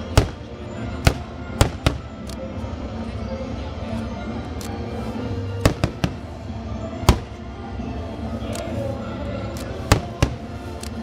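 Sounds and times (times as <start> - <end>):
fireworks bursting with bangs: 0.0 - 2.1, 5.6 - 6.4, 7.0 - 7.5, 9.9 - 10.6
music playing: 0.0 - 11.0.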